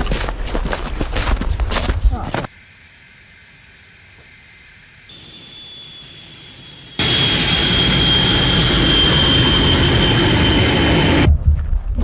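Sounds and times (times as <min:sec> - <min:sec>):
jet engine whine: 0:02.8 - 0:11.4
rushing noise: 0:05.1 - 0:11.5.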